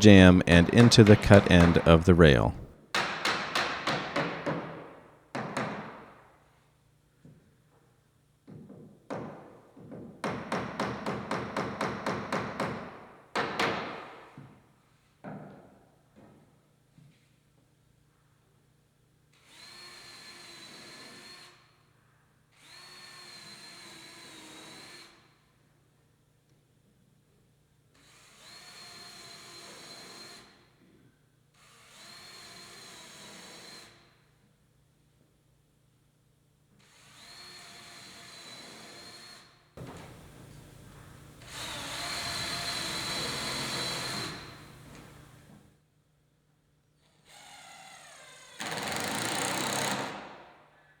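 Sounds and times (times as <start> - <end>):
power drill driving screws: 41.4 - 45.2, 48.6 - 50.2.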